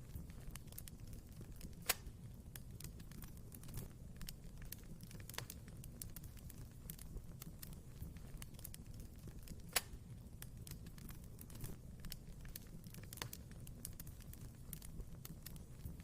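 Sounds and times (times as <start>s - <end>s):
crackles of burning wood: 0.0s - 16.0s
fire burning in a fireplace: 0.0s - 16.0s
sharp pop from burning logs: 1.6s - 4.4s, 6.9s - 14.0s.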